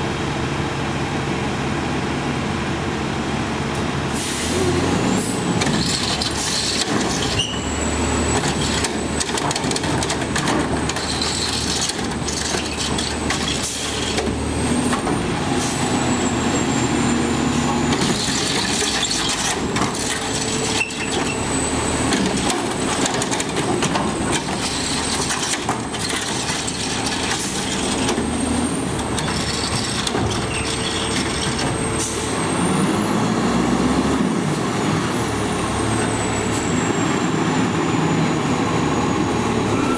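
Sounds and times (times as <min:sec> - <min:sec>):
diesel engine whining: 0:00.0 - 0:39.9.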